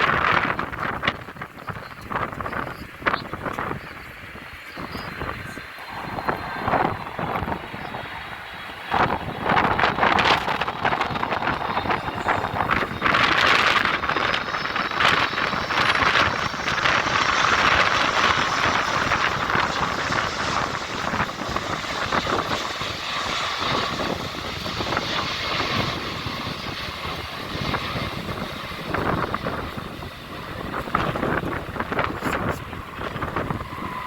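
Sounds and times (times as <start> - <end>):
jet engines passing: 0.0 - 34.0.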